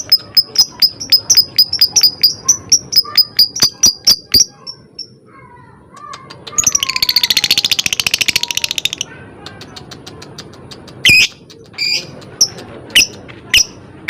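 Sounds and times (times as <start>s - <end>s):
bird ticking chatter: 0.0s - 5.2s
shrill bird squawks: 0.1s - 4.9s.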